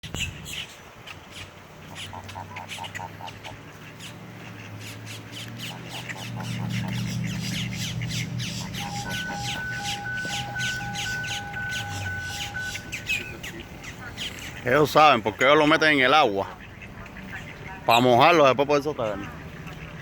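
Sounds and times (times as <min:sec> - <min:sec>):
birds chirping and squawking: 0:00.0 - 0:20.0
low steady hum: 0:05.6 - 0:14.6.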